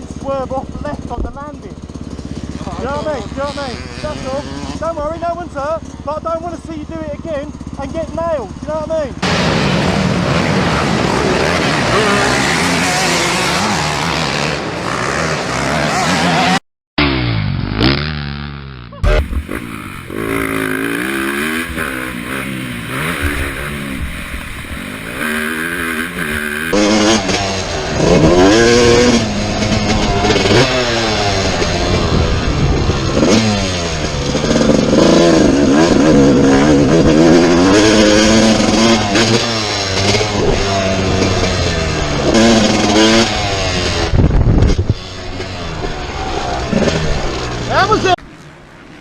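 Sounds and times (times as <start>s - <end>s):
dirt bike engines revving: 0.0s - 49.0s.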